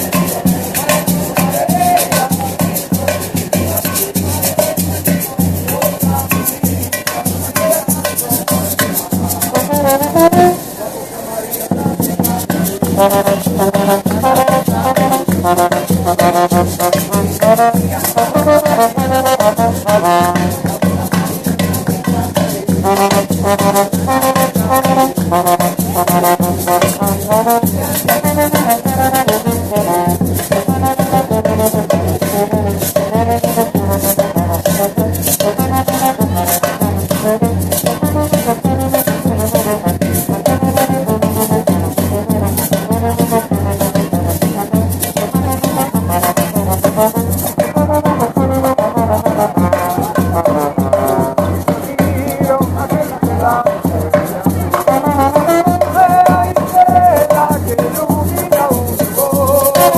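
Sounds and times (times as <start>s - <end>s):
steady drum beat: 0.0s - 10.8s, 11.5s - 59.9s
shakers: 0.0s - 59.9s
brass horns playing melody: 9.4s - 10.8s, 12.8s - 21.2s, 22.8s - 52.4s, 54.1s - 59.9s.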